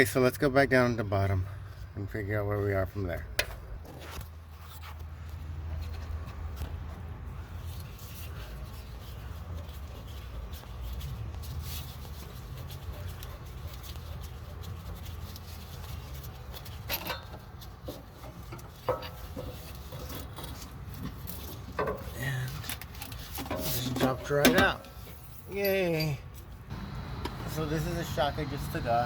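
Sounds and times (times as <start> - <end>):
steady low hum: 26.7 - 28.9.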